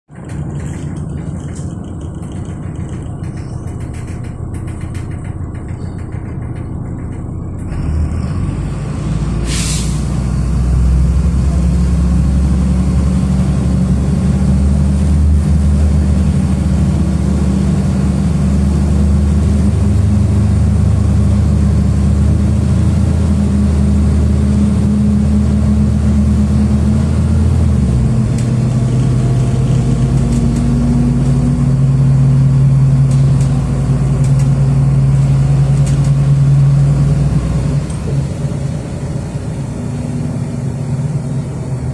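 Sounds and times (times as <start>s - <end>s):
bus engine running: 0.1s - 41.9s
air hiss: 9.4s - 10.2s.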